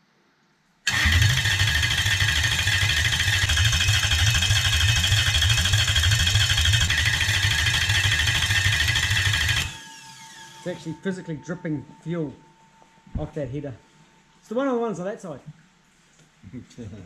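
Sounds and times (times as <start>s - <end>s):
engine running steadily: 0.9s - 9.7s.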